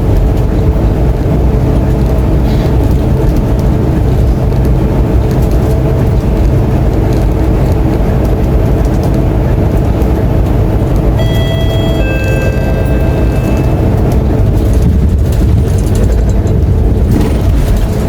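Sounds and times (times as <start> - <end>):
bus engine droning: 0.0 - 18.0
two-note chime: 11.2 - 14.2.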